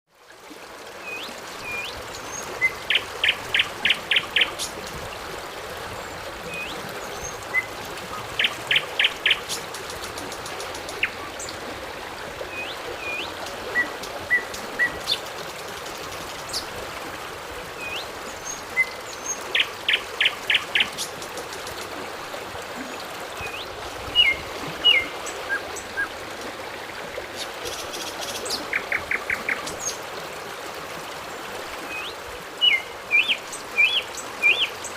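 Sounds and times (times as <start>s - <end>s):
running water: 0.1s - 34.9s
birds singing and calling: 23.4s - 26.2s, 31.9s - 34.9s.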